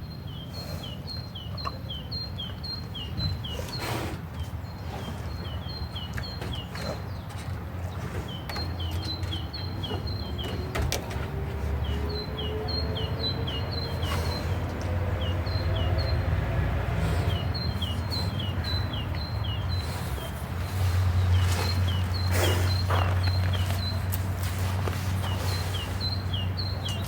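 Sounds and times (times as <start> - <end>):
small bird chirping: 17.0 - 27.0.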